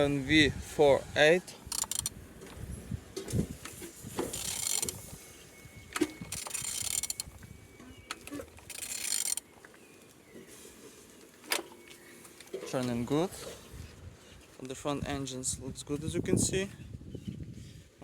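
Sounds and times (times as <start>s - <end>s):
rasping engine crankshaft turning: 0.0s - 2.6s, 4.2s - 5.1s, 6.0s - 7.4s, 8.2s - 9.5s
metal parts clicking: 1.7s - 2.1s, 4.3s - 5.1s, 6.0s - 7.3s, 8.1s - 9.5s.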